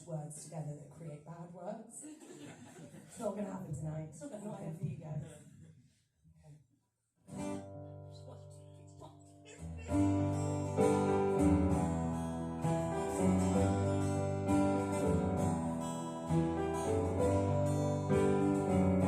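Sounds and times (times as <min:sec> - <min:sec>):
acoustic guitars strumming chords: 0:07.3 - 0:08.9, 0:09.5 - 0:19.0.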